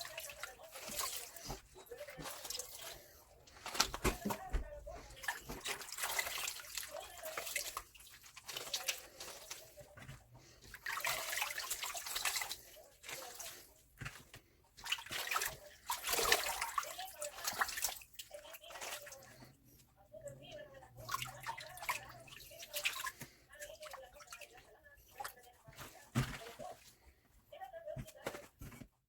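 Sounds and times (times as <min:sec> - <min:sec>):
tap water splashing in sink: 0:10.6 - 0:19.6.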